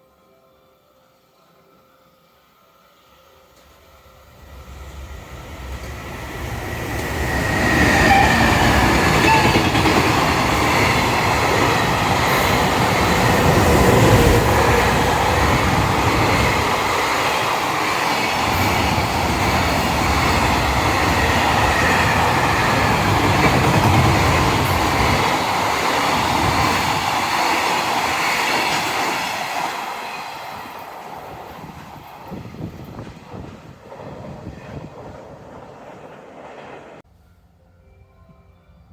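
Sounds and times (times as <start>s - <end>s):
train passing on rails: 2.8s - 37.1s.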